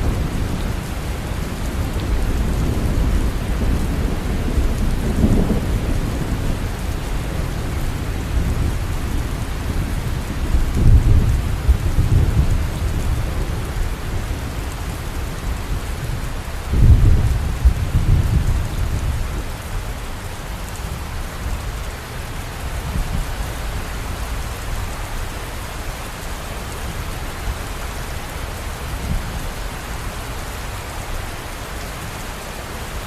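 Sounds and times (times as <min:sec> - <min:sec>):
low rolling thunder: 0:00.0 - 0:25.6
heavy rain: 0:00.0 - 0:33.0.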